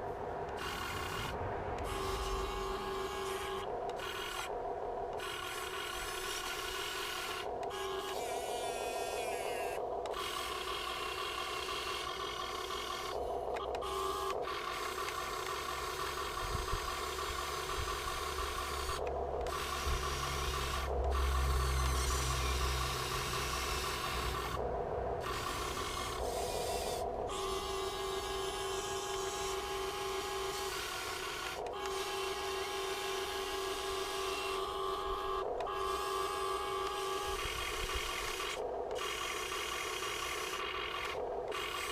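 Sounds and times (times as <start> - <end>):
toy excavator servos whining: 0.5 - 24.6, 25.2 - 41.9
heavy low rumble: 17.7 - 27.3.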